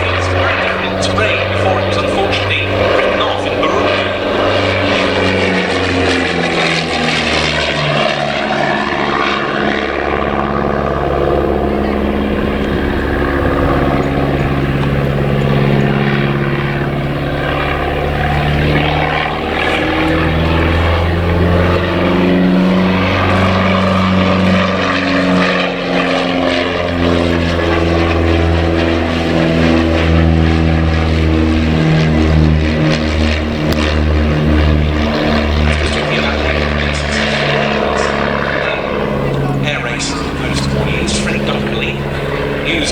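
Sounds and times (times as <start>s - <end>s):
light aircraft engine in flight: 0.0s - 42.9s.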